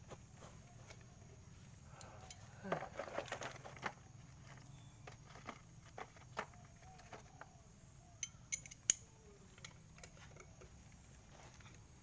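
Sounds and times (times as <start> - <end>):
metallic clinks: 8.2 - 10.7.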